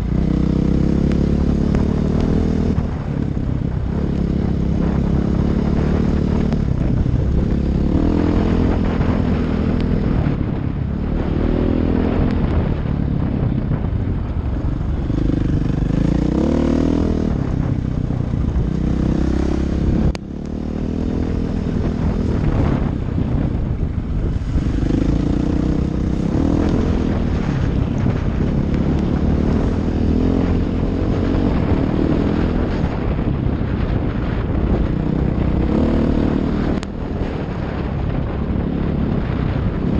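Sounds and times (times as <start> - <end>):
dirt bike engine revving: 15.1 - 17.7, 24.3 - 33.3, 33.9 - 37.8.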